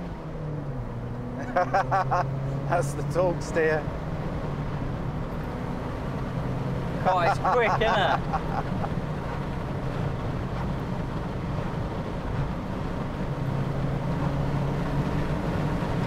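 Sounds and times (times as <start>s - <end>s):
car engine droning: 0.0s - 16.0s
road noise: 0.0s - 16.0s.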